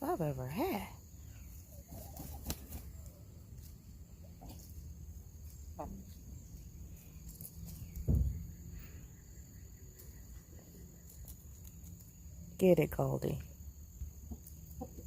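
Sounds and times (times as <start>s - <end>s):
hens clucking softly: 14.1s - 15.0s.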